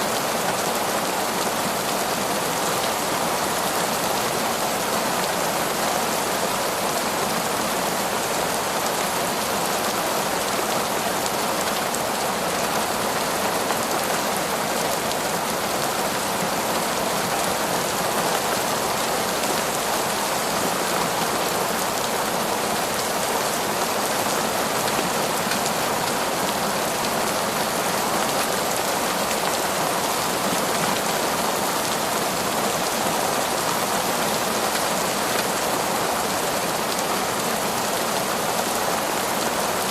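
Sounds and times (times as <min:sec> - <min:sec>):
heavy rain on forest: 0:00.0 - 0:39.9.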